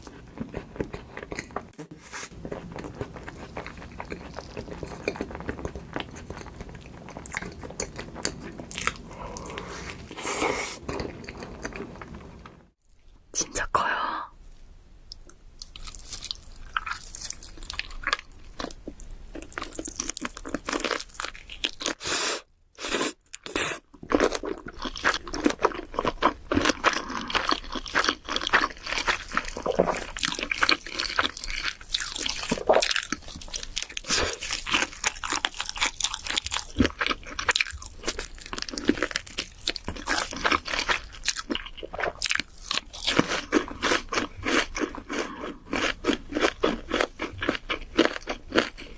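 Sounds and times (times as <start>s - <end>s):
crunchy chewing: 0.0s - 12.1s, 23.3s - 48.9s.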